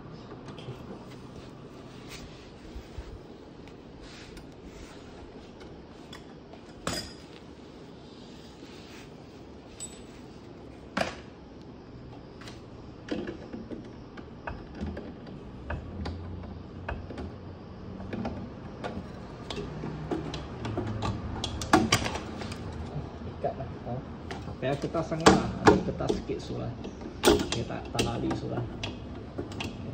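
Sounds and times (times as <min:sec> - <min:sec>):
tools and metal parts clicking: 0:09.8 - 0:10.1.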